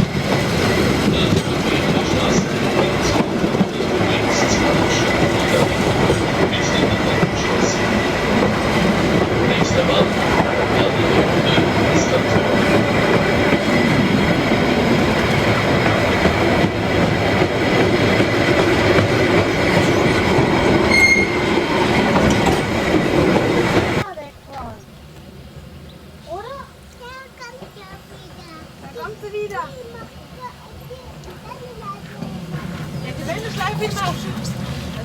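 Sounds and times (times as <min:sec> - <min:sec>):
train rumbling along track: 0:00.0 - 0:35.0
high wheel squeal: 0:20.8 - 0:21.6.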